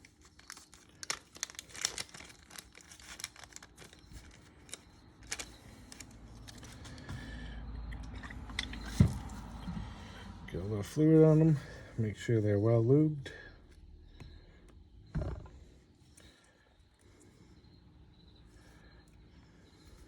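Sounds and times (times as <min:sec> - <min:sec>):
plastic packet crinkling: 0:00.0 - 0:07.0.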